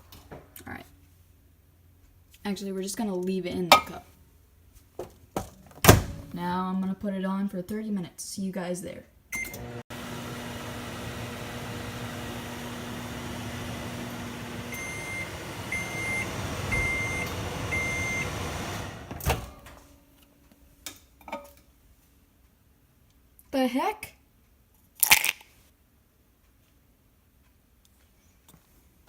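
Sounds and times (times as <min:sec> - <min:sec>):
microwave beeps: 0:09.4 - 0:09.7, 0:10.6 - 0:19.7
microwave oven humming: 0:09.4 - 0:20.2.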